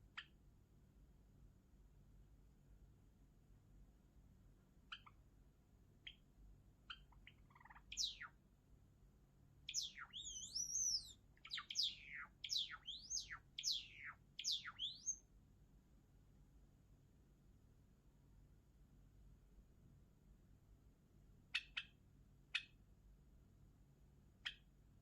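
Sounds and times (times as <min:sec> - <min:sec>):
sparrow singing: 0:04.9 - 0:05.2, 0:06.9 - 0:08.4, 0:09.7 - 0:15.3, 0:21.6 - 0:22.0.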